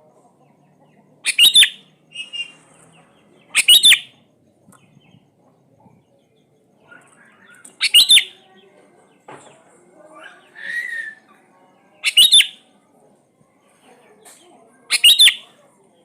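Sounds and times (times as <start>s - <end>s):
soft bird chirps: 0.4s - 8.8s, 12.0s - 12.7s, 14.9s - 15.6s
bulbul singing: 1.2s - 2.6s, 3.3s - 4.3s, 7.4s - 8.5s, 12.0s - 12.6s, 14.9s - 15.5s.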